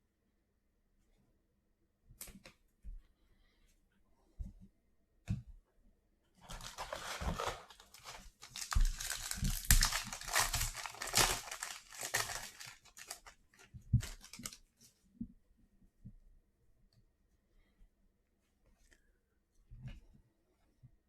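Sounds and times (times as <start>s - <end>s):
foil pack tearing and crinkling: 6.5s - 13.3s, 14.0s - 14.6s.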